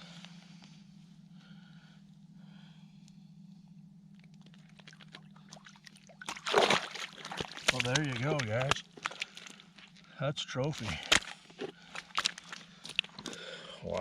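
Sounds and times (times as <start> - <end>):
steady low hum: 0.0 - 14.0
water splashing and sloshing: 4.2 - 13.5.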